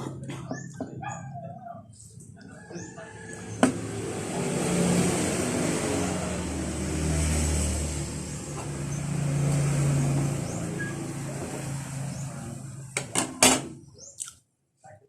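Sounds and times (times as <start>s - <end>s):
vehicle engine passing: 2.1s - 13.2s.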